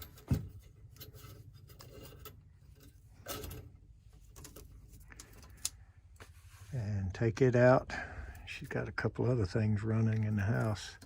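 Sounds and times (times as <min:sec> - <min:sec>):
metal tools clinking and rattling: 0:00.0 - 0:05.5.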